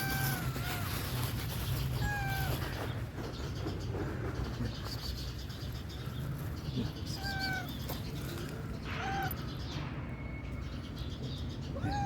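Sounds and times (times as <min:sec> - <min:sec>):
cat meowing: 0:00.0 - 0:01.0, 0:02.0 - 0:02.6, 0:07.1 - 0:07.8, 0:11.8 - 0:12.0.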